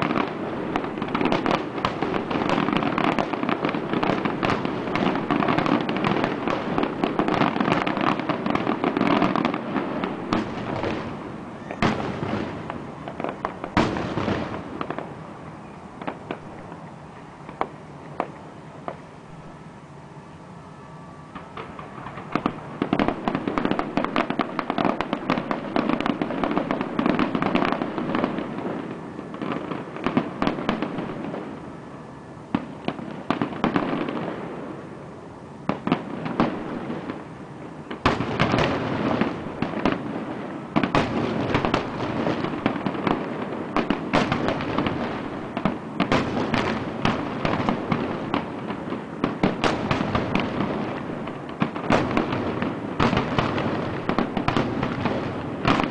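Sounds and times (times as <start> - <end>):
fireworks bangs and crackles: 0.0 - 19.1, 21.2 - 55.9.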